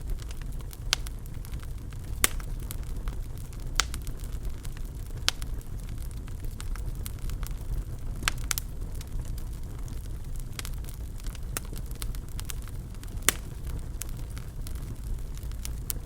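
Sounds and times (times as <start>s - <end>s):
sharp pops from fire: 0.0s - 16.0s
wood fire crackling: 0.0s - 16.0s.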